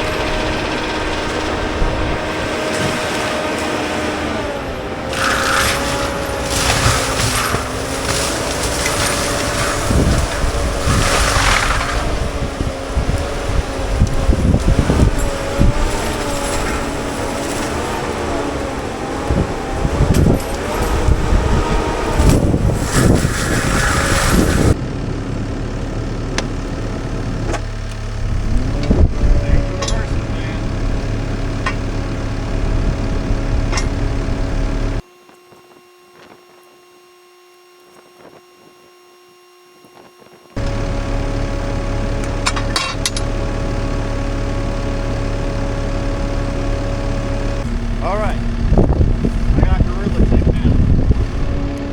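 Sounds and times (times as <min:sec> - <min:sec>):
diesel engine under load: 0:00.0 - 0:35.1, 0:40.5 - 0:51.9
mulcher grinding brush: 0:00.0 - 0:51.9
wood cracking and knocking: 0:05.0 - 0:24.8.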